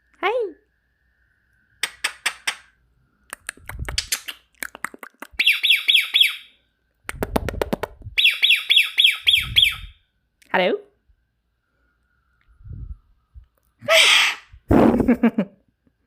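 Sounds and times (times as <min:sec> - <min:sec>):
parrot clicking and chattering: 0:01.8 - 0:02.7, 0:03.3 - 0:05.5
parrot shrill chirps: 0:05.4 - 0:06.6, 0:08.2 - 0:10.0, 0:13.8 - 0:14.5.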